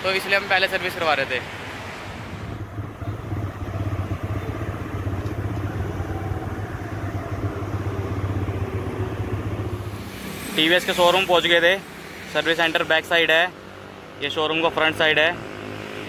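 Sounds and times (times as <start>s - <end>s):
motorcycle engine cruising: 2.1s - 16.0s.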